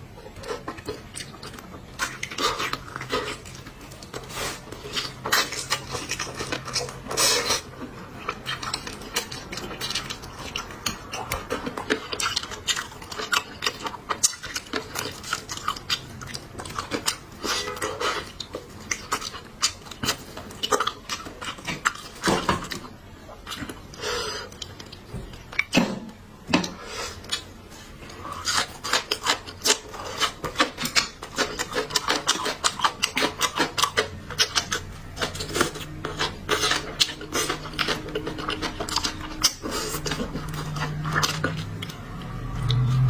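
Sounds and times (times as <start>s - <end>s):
chewing and crunching food: 0.0s - 43.0s.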